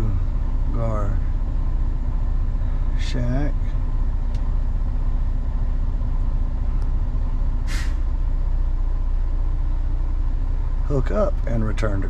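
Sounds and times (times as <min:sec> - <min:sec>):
diesel engine idling: 0:00.0 - 0:12.0
short air hiss: 0:07.6 - 0:08.0.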